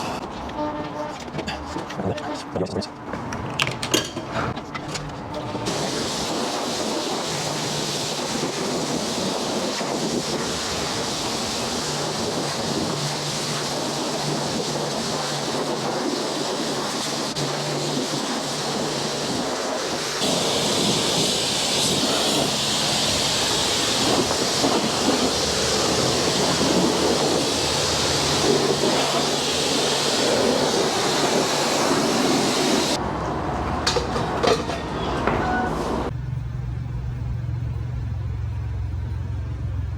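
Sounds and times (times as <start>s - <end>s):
pressure washer spraying water: 5.6s - 33.0s.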